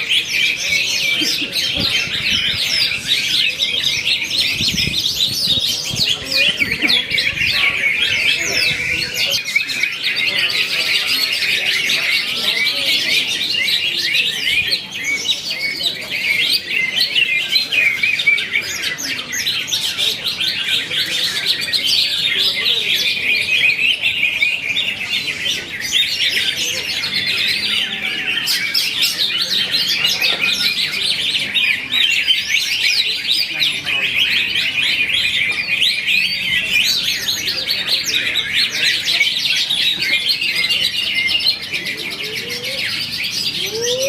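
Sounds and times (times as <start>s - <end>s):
bird singing high chirps and trills: 0.0s - 44.0s.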